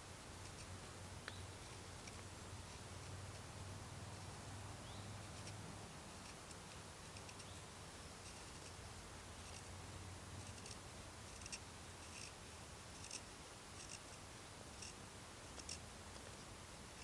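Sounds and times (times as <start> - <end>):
knife carving wood: 5.2 - 7.6, 8.2 - 9.7, 10.4 - 16.5.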